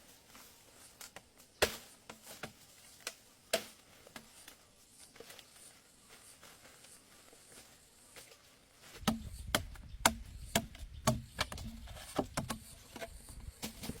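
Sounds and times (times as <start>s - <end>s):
sharp chopping blows: 9.0s - 11.6s
dull thuds: 9.0s - 12.7s.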